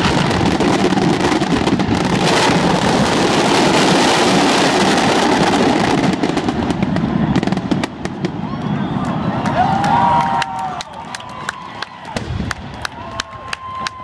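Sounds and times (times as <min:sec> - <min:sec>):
fireworks bursting: 0:00.0 - 0:09.4, 0:12.1 - 0:12.9
fireworks crackling: 0:00.0 - 0:10.3, 0:12.1 - 0:14.0.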